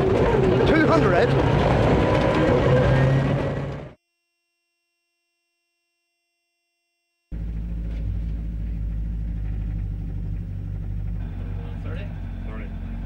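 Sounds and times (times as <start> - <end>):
car engine idling: 0.0 - 3.9, 7.3 - 13.0.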